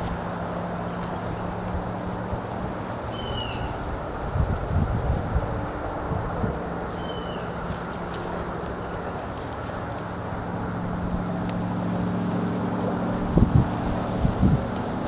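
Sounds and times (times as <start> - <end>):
low engine hum: 0.0 - 15.0
bird chirp: 3.1 - 3.8, 6.9 - 7.8.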